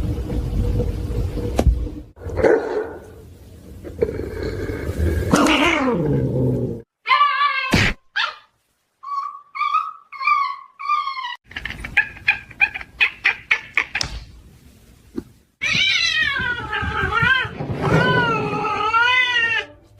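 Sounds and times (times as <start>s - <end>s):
cat meowing: 15.6s - 19.8s
cat yowling: 15.6s - 19.8s.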